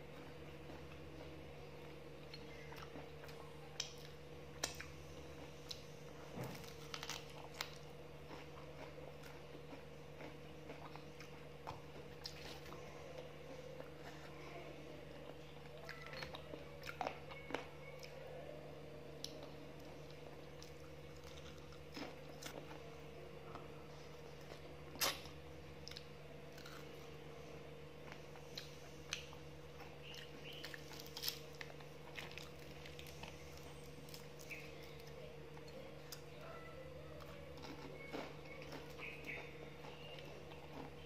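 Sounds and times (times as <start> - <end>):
person chewing fried chicken: 0.0 - 14.3, 19.2 - 22.9, 23.5 - 27.2, 28.0 - 35.2, 37.2 - 41.0
steady low hum: 0.0 - 41.0.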